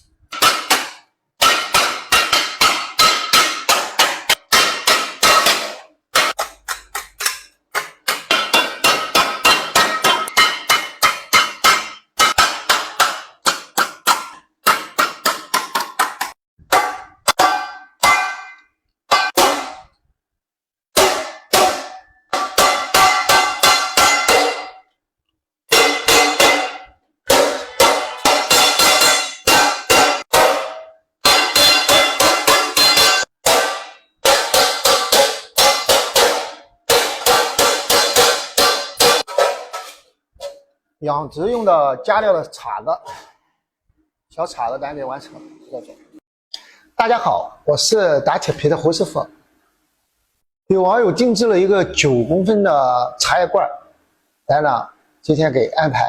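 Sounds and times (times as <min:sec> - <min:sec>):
hammer striking sheet metal: 0:00.0 - 0:20.0, 0:20.9 - 0:25.0, 0:25.7 - 0:40.6.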